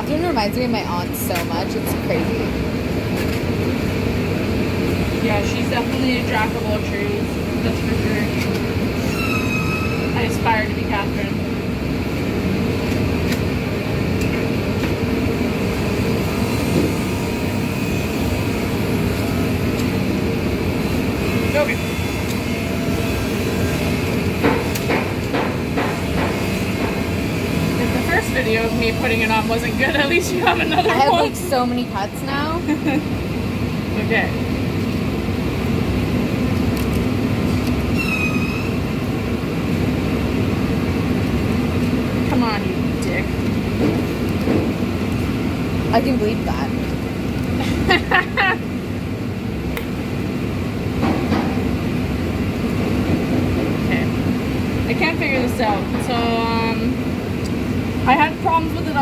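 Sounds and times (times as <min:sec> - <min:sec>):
machinery rumble: 0:00.0 - 0:59.0
high squeak sliding down: 0:09.0 - 0:10.2, 0:38.0 - 0:38.8.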